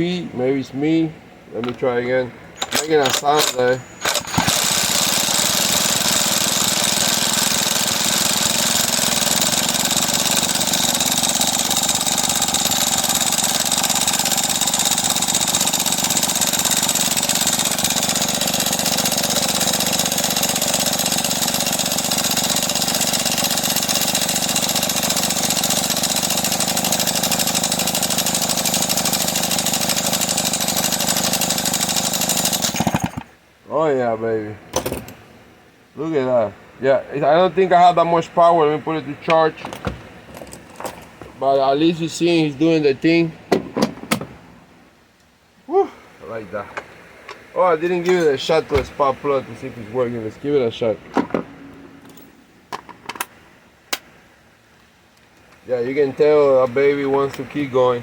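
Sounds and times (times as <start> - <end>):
power tool motor: 2.6 - 33.3
chainsaw engine turning over: 2.6 - 33.4, 34.7 - 35.2.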